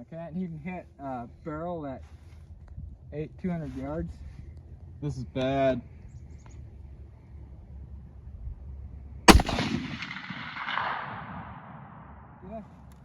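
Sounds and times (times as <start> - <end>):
rifle shot with rolling echo: 9.3 - 12.8.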